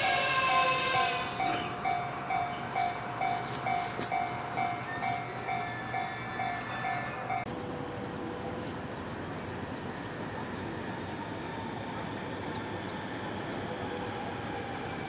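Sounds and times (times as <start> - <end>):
train wheels clattering over rail joints: 1.4 - 5.6.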